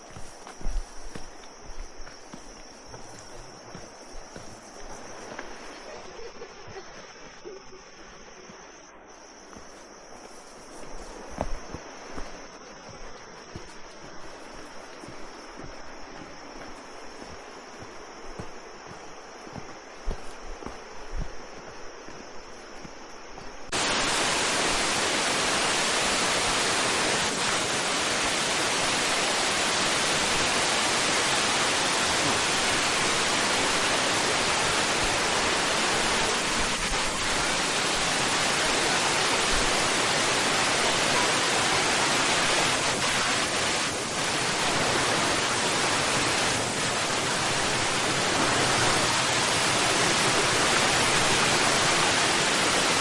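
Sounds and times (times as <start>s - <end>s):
waterfall rushing: 23.7s - 53.0s.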